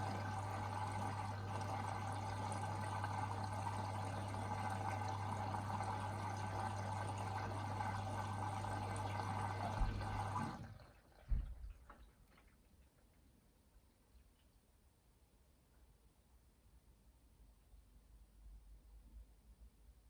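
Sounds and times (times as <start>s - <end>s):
steady electrical hum: 0.0s - 10.6s
water rushing into drum: 0.0s - 12.4s
low thump: 9.8s - 10.1s, 11.3s - 11.6s.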